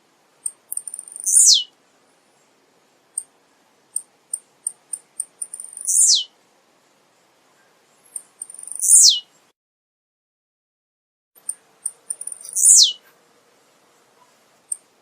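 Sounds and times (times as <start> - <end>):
high bird ticks: 0.4 - 1.4, 3.1 - 6.0, 8.1 - 9.0, 11.4 - 12.7, 14.7 - 14.9
bird singing downslurred note: 5.6 - 6.3, 12.1 - 13.0.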